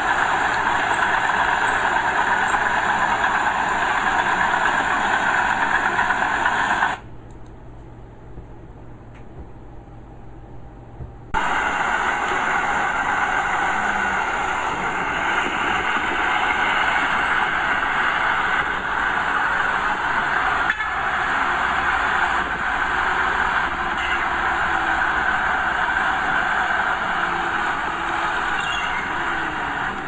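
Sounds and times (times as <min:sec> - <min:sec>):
diesel machinery engine: 0:00.0 - 0:07.4, 0:11.3 - 0:30.0.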